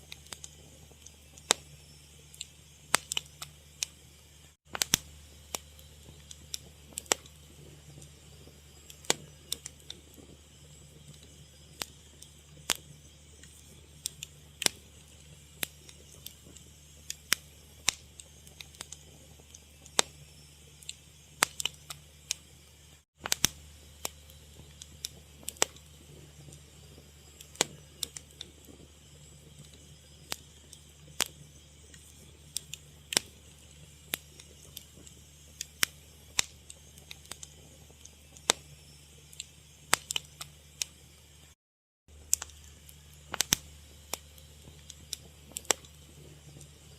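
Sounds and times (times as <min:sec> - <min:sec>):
wood fire crackling: 0:00.0 - 0:41.5, 0:42.1 - 0:46.9
low steady hum: 0:00.0 - 0:46.9.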